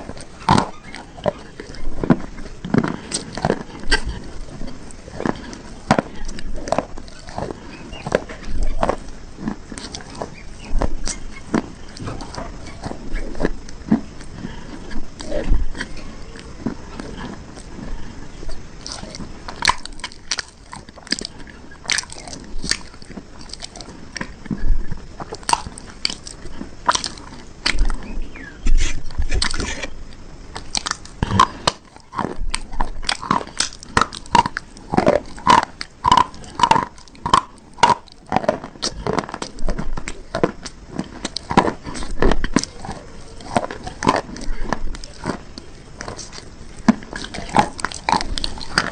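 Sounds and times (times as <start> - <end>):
crunchy bars being chewed: 0.0 - 48.9.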